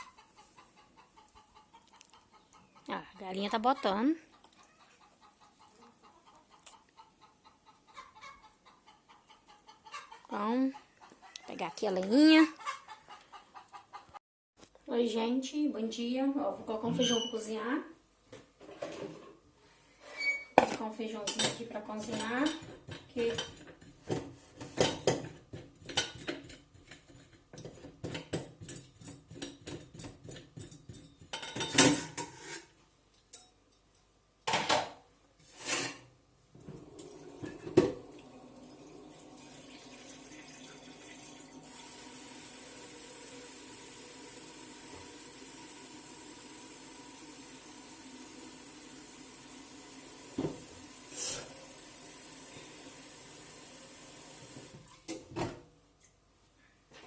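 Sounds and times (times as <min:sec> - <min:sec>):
pots and pans clanking: 0:20.6 - 0:32.6, 0:37.3 - 0:38.1
running water: 0:36.6 - 0:54.9.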